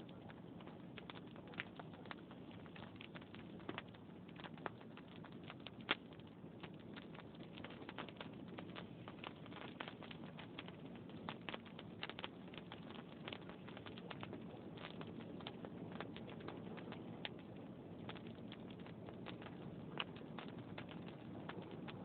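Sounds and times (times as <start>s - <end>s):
fire pops and snaps: 0.0s - 22.0s
flames rustling: 0.0s - 22.0s.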